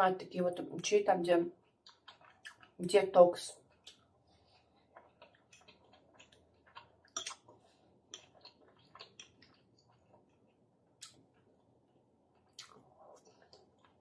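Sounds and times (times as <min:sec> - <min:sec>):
chewing pasta: 0:01.5 - 0:02.8, 0:03.5 - 0:14.0.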